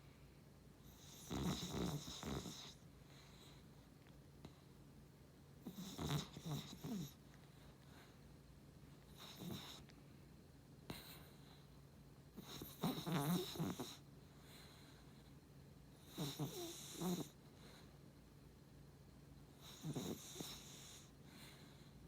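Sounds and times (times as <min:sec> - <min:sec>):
dog snoring: 0:00.8 - 0:03.6, 0:05.6 - 0:08.1, 0:09.1 - 0:09.9, 0:10.9 - 0:11.6, 0:12.3 - 0:15.0, 0:15.9 - 0:17.8, 0:19.5 - 0:21.9.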